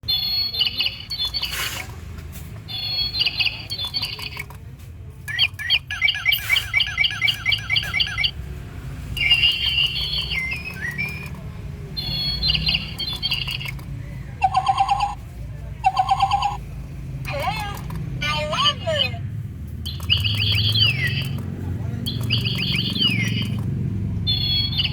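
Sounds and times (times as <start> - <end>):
electronic toy bird chirping: 0.0 - 1.9, 2.6 - 4.5, 5.3 - 8.4, 9.2 - 15.2, 15.8 - 16.6, 17.3 - 19.2, 19.9 - 21.5, 22.1 - 24.9.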